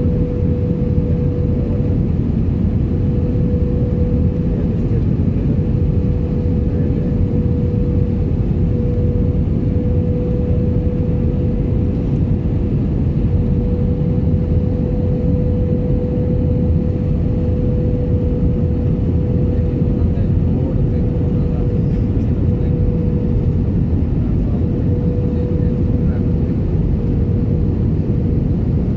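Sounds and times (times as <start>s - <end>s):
engine and airflow rumble: 0.0s - 28.9s
mid-pitched hum: 0.0s - 28.9s.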